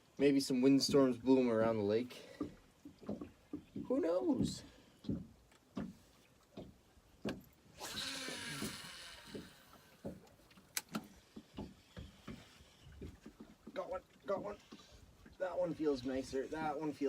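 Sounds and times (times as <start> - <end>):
fishing reel whirring: 7.8 - 10.0.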